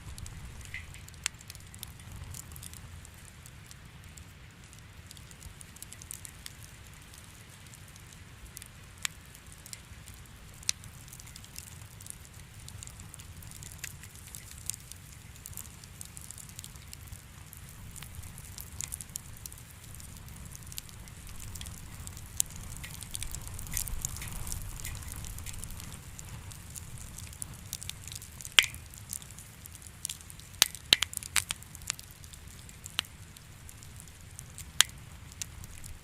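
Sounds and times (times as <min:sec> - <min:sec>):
wood fire crackling in fireplace: 0:00.0 - 0:36.0.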